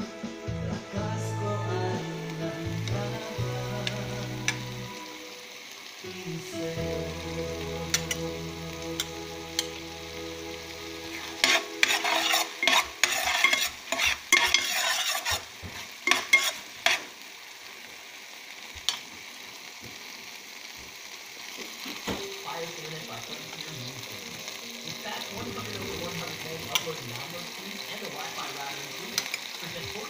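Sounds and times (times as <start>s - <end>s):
onion frying in oil: 1.5s - 30.0s
metal spoon scraping a pan: 11.1s - 17.2s.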